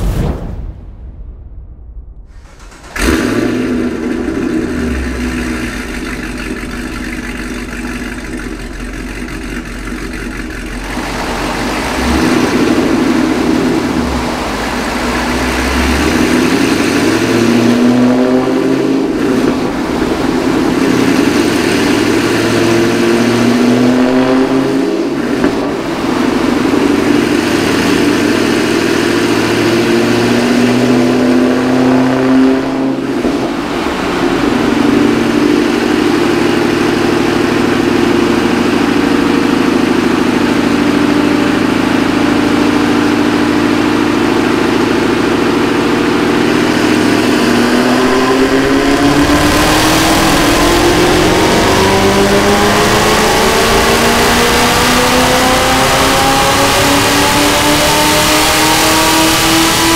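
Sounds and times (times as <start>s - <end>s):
car engine revving on dyno: 2.4s - 59.9s.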